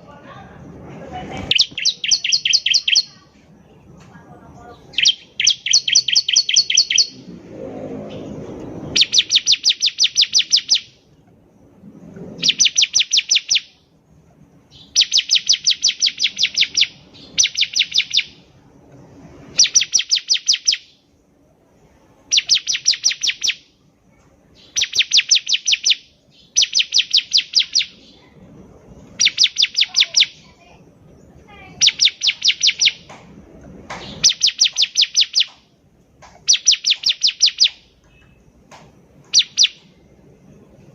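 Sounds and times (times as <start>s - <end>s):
bird singing rapid high notes: 1.4s - 3.3s, 4.8s - 7.3s, 8.8s - 11.0s, 12.4s - 13.8s, 14.7s - 18.5s, 19.5s - 21.1s, 22.3s - 23.7s, 24.6s - 28.2s, 29.2s - 30.6s, 31.7s - 33.1s, 34.0s - 35.6s, 36.4s - 38.5s, 39.3s - 39.9s.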